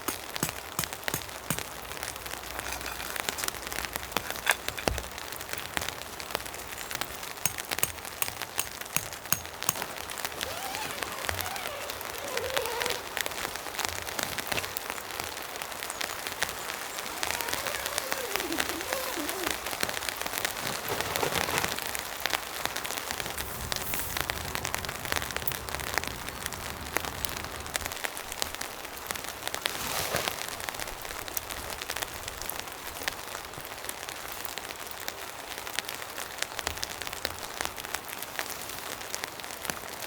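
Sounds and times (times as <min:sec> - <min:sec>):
rain falling: 0:00.0 - 0:40.0.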